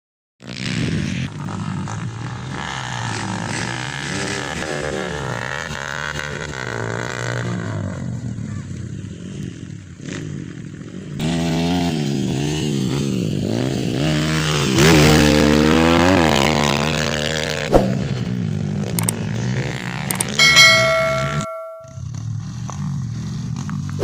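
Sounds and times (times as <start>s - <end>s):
motocross bikes revving: 0.5s - 21.2s
brief steady tone: 20.2s - 22.0s.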